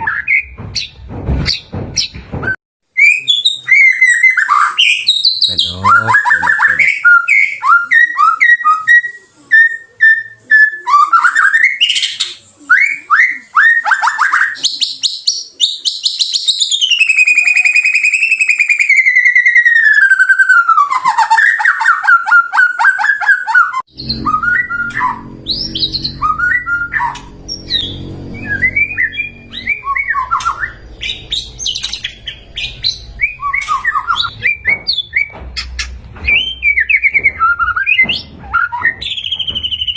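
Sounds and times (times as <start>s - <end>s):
bird singing whistles and chirps: 3.0s - 39.9s
low background rumble: 23.9s - 37.5s.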